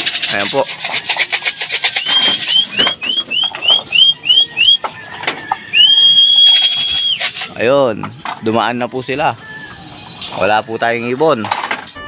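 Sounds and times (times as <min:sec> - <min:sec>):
fast rattle: 0:00.0 - 0:03.1, 0:06.4 - 0:07.6
person whistling: 0:01.5 - 0:04.9, 0:05.7 - 0:07.5.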